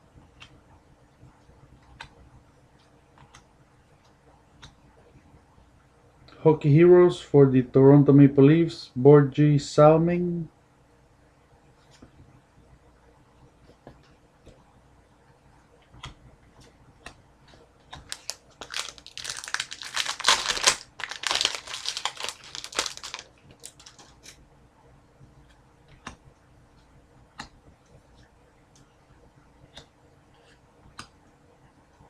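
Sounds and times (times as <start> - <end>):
soft clicks of cards handled: 0.3 - 0.6, 1.8 - 2.2, 2.8 - 4.8, 11.8 - 12.3, 15.8 - 18.2, 25.4 - 29.0, 29.6 - 31.2
foil wrapper crinkling and tearing: 18.1 - 24.4.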